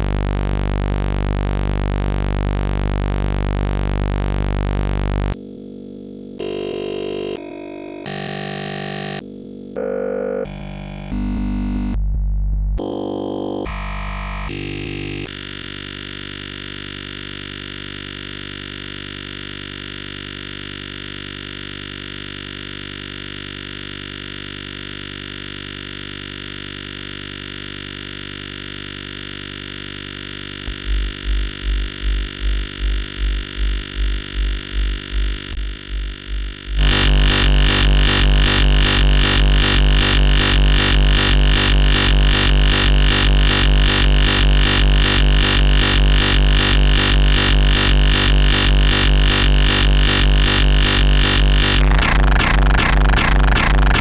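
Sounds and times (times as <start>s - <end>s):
deep repeating kick pulse: 0.0s - 5.4s, 30.6s - 54.0s
long buzzy synth note: 25.7s - 54.0s.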